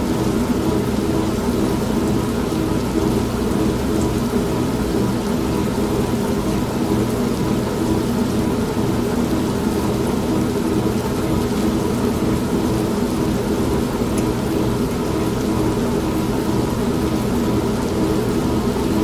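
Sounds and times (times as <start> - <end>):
steady rain: 0.0 - 19.0
washing machine humming and churning: 0.0 - 19.0.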